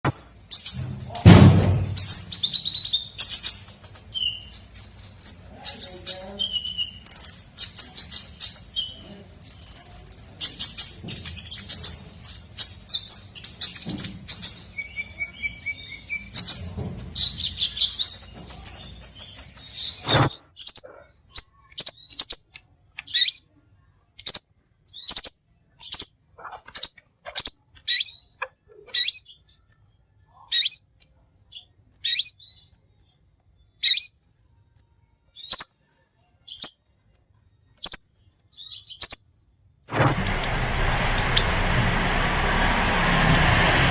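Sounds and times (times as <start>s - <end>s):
bird twittering song: 0.1s - 23.5s, 24.2s - 29.8s, 31.5s - 34.3s, 35.3s - 35.8s, 37.8s - 41.6s
short sharp bird chirps: 17.5s - 22.4s.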